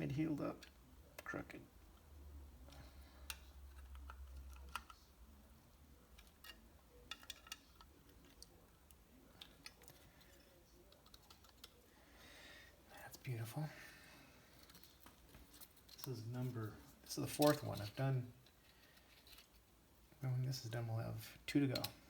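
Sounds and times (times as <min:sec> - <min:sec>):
small parts clicking and tapping: 0:00.5 - 0:05.2, 0:06.1 - 0:11.9, 0:14.5 - 0:16.2, 0:17.3 - 0:19.7, 0:21.5 - 0:22.0.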